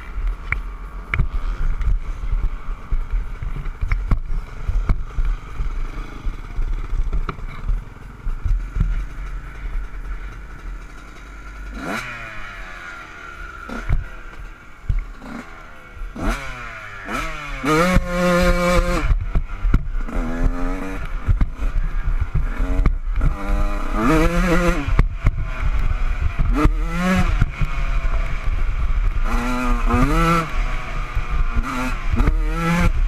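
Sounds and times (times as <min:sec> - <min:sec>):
two-stroke motorcycle engine revving: 0:00.0 - 0:33.0
rattling knocks from motorcycle: 0:06.5 - 0:09.6
wind rumble on microphone: 0:17.9 - 0:33.0.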